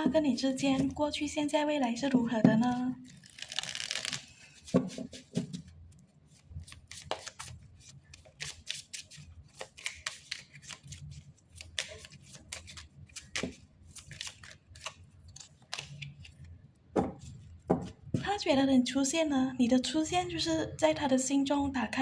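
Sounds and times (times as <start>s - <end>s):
cards being shuffled: 3.1s - 5.7s, 6.3s - 16.4s.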